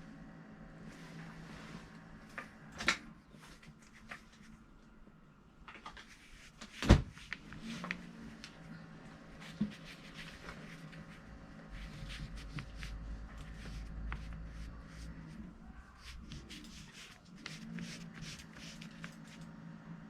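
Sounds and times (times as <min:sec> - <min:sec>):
low hum: 0:07.4 - 0:20.0.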